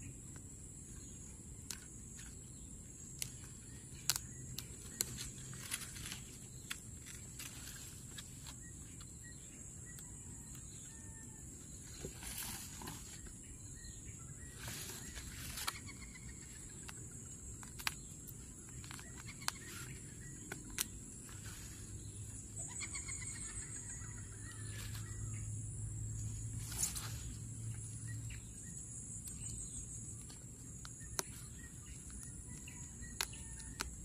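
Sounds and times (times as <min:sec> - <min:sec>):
high insect-like hum: 0:00.0 - 0:34.0
hands handling plants and soil: 0:00.2 - 0:10.9, 0:11.6 - 0:25.4, 0:26.2 - 0:34.0
bird calling in descending runs: 0:22.6 - 0:25.5.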